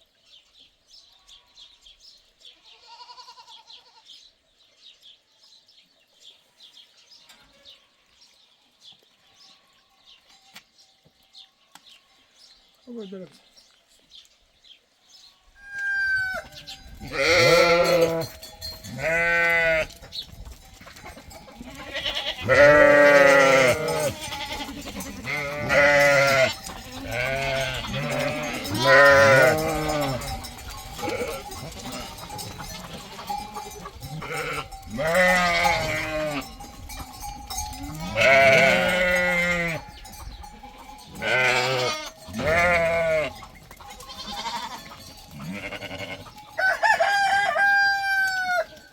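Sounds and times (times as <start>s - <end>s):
goats bleating: 2.6s - 4.2s, 15.7s - 20.0s, 20.9s - 46.6s.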